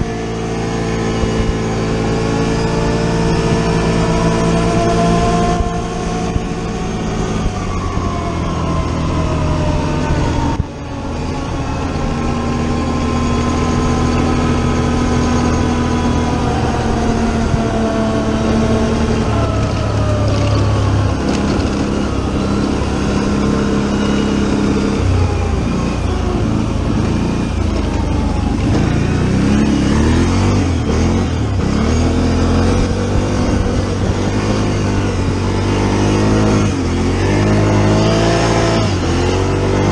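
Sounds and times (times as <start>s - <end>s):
atv engine revving: 0.0s - 39.9s
wind rushing over microphone: 0.0s - 39.9s.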